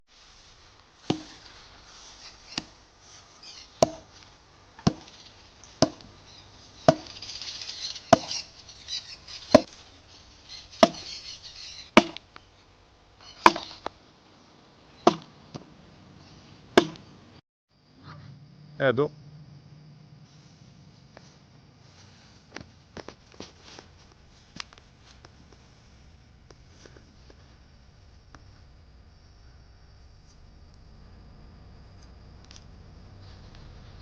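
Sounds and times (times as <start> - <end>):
wood being chopped: 1.1 - 1.4, 3.8 - 4.2, 4.8 - 6.2, 6.9 - 8.4, 9.3 - 9.8, 10.7 - 12.3, 13.4 - 13.9, 15.0 - 15.7, 16.8 - 17.1.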